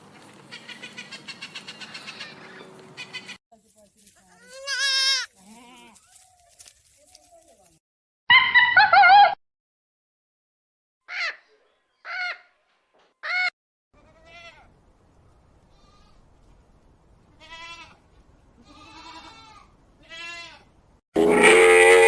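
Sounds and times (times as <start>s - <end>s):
livestock bleating: 4.2s - 6.3s, 17.4s - 18.0s, 18.6s - 22.0s.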